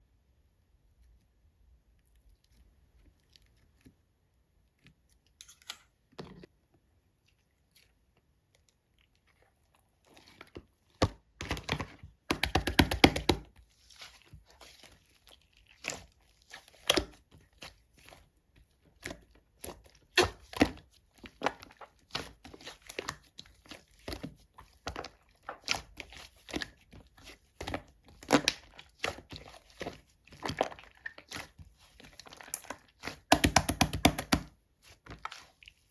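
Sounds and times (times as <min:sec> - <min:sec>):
slime clicking and popping: 0:32.5 - 0:34.5.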